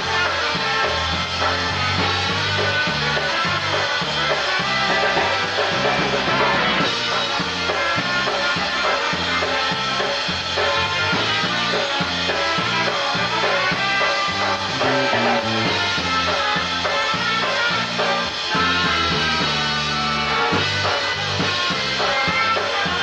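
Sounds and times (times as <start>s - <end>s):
polka band playing: 0.0s - 23.0s
oom-pah bass beat: 12.1s - 18.0s.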